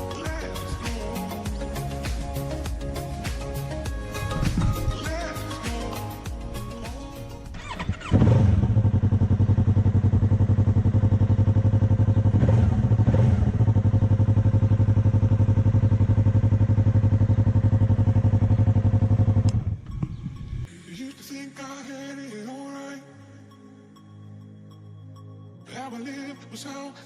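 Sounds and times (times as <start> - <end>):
motorcycle engine idling: 7.5 - 20.6.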